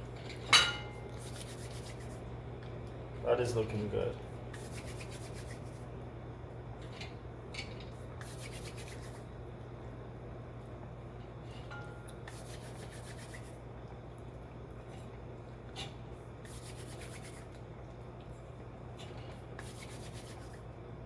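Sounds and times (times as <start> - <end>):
steady low hum: 0.0 - 21.0
rubbing and scraping strokes: 1.2 - 2.2, 4.6 - 5.8, 8.2 - 9.2, 12.3 - 13.6, 19.6 - 20.6.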